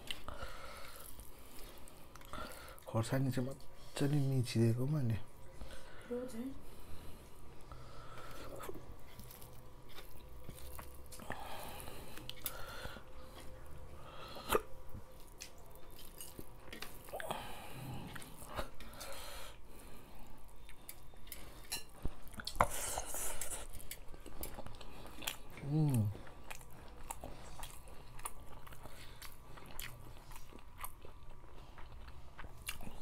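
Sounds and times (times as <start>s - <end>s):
wet chewing and lip-smacking: 8.2s - 33.0s.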